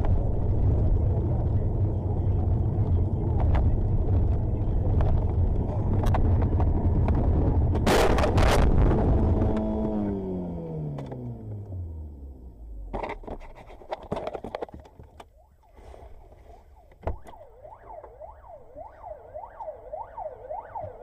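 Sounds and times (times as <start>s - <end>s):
siren wailing: 15.3s - 21.0s.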